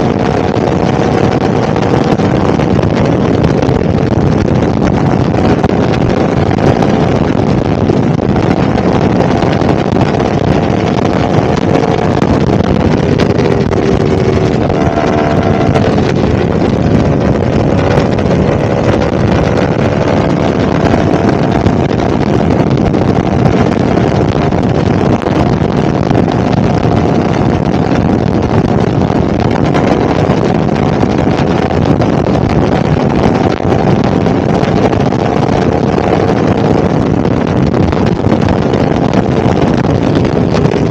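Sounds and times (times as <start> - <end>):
motorcycle engine running steadily: 0.0 - 40.9
wind noise on microphone: 0.0 - 40.9.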